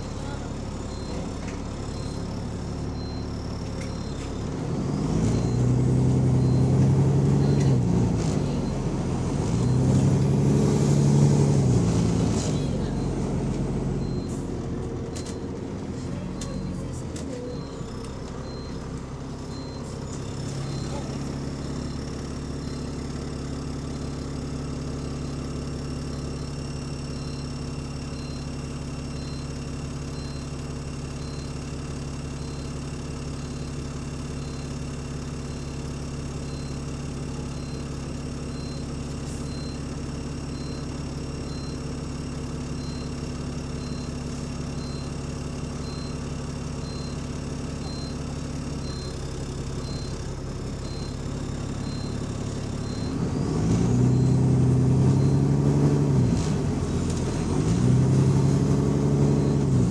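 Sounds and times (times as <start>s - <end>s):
diesel bus engine idling: 0.0s - 59.9s
faint regular tick: 57.1s - 57.3s.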